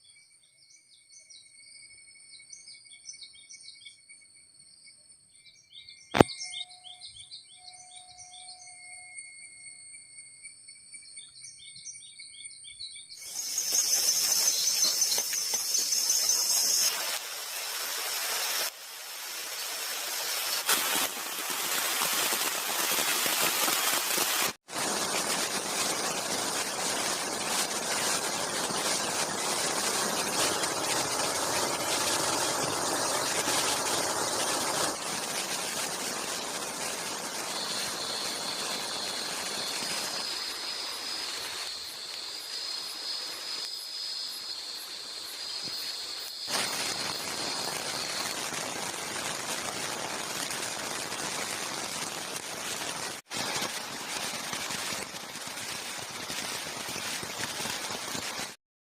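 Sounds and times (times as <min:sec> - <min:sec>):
insect trills: 0:00.0 - 0:49.3
heavy rain falling: 0:13.2 - 0:41.7, 0:46.5 - 0:58.6.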